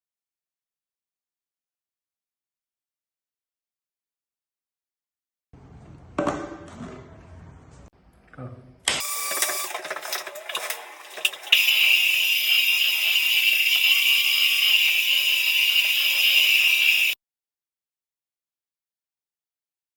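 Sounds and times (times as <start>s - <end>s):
floor sanding machine running: 9.3s - 17.2s.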